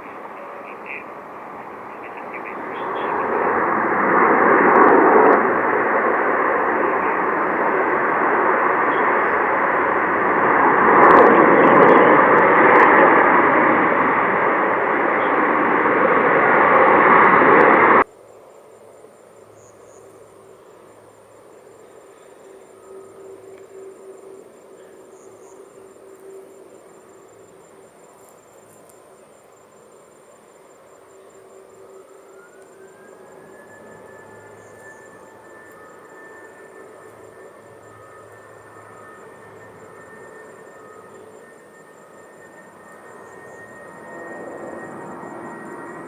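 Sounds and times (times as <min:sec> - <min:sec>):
jet airliner engine: 0:00.0 - 0:46.0
faint high-pitched tone: 0:31.2 - 0:46.0.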